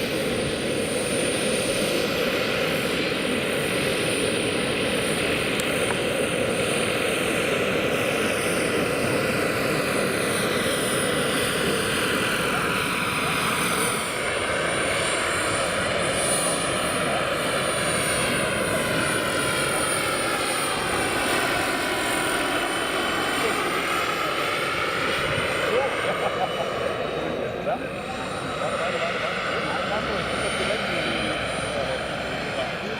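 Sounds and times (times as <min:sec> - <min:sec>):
helicopter rotor rushing: 0:00.0 - 0:32.9
model helicopter turbine whine: 0:00.0 - 0:32.9.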